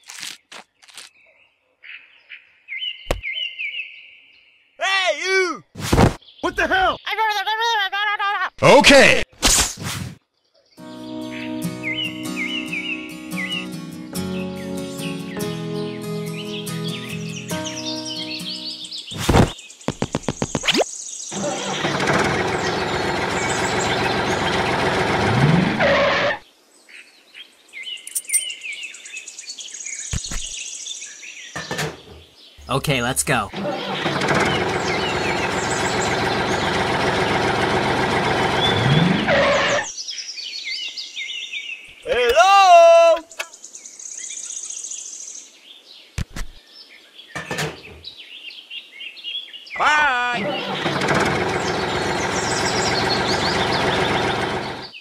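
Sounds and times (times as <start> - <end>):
birds chirping: 0.0 - 7.8, 10.3 - 25.3, 26.4 - 55.0
motor running: 21.4 - 26.3, 33.5 - 39.9, 50.4 - 55.0.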